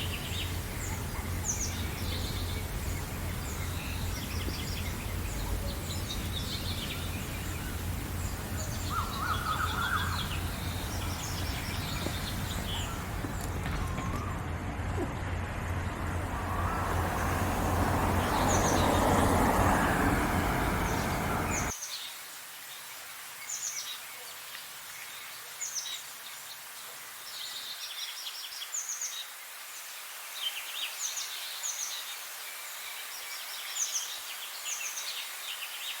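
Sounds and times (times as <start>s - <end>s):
loud low rumbling noise: 0.0s - 21.7s
songbirds chirping and singing: 0.0s - 22.1s.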